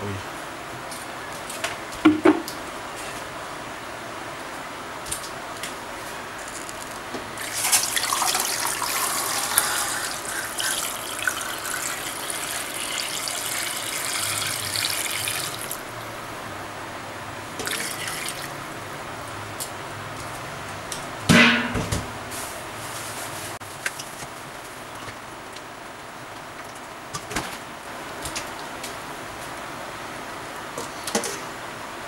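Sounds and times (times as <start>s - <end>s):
water pouring into a metal pot: 7.4s - 15.8s, 17.6s - 18.5s.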